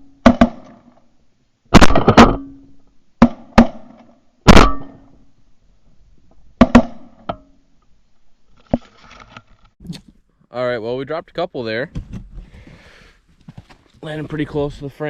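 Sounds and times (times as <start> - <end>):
shotgun shots: 0.2 - 0.8, 1.7 - 2.5, 3.2 - 5.0, 6.6 - 7.2.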